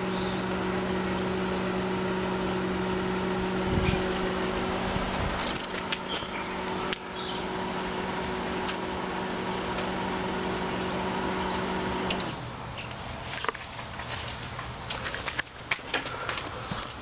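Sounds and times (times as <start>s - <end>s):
microwave oven humming: 0.0s - 12.5s.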